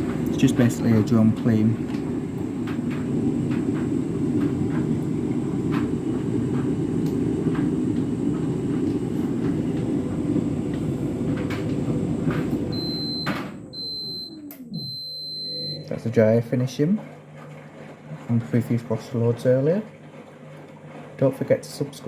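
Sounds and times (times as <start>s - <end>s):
dryer beeping: 0.0s - 16.7s
tumble dryer running: 0.0s - 22.0s.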